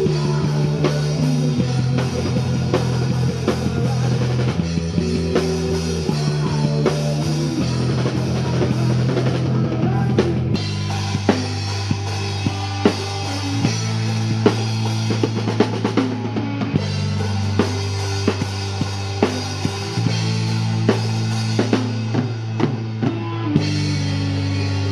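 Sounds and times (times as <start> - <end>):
drum kit beating: 0.0 - 24.9
instrumental rock band: 0.0 - 24.9.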